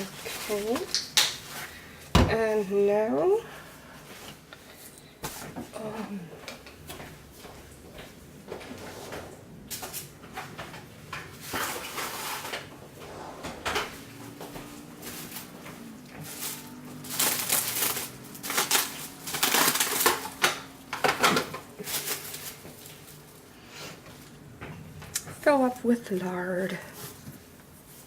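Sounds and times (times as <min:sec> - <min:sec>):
kitchen utensils clattering and scraping: 0:08.6 - 0:23.3.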